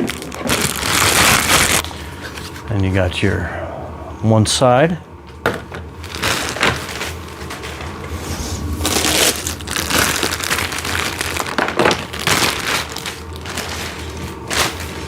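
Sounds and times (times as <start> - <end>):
plastic packaging crinkling: 0.0 - 1.9, 6.0 - 15.0.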